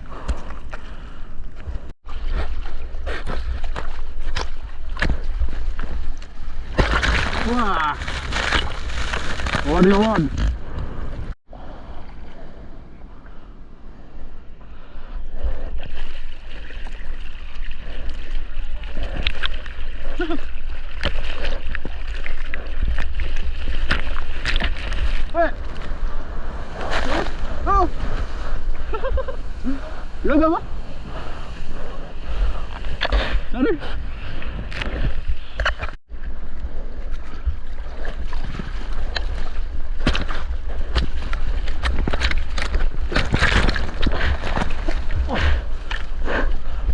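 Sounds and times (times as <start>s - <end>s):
wind rumbling on microphone: 0.0s - 46.9s
water splashing: 4.0s - 10.9s
ocean water rushing and sloshing: 4.7s - 46.9s.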